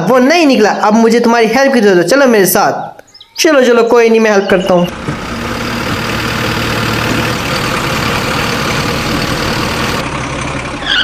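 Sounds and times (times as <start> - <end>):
heavy vehicle engine running: 4.4 - 11.0.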